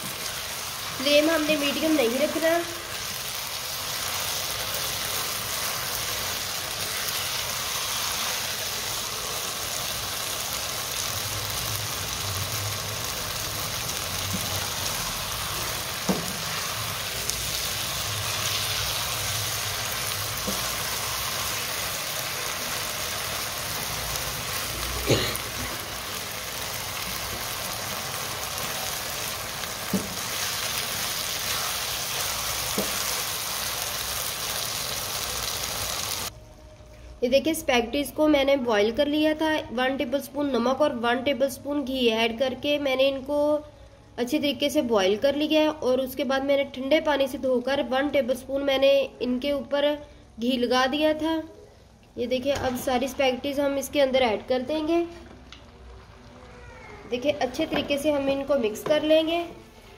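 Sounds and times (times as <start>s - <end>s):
food sizzling in a wok: 0.0s - 36.3s.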